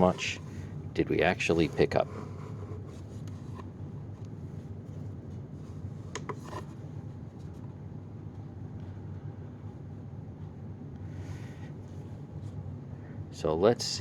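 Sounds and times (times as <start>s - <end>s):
soft rubbing: 0.0s - 7.6s
steady low hum: 0.0s - 14.0s.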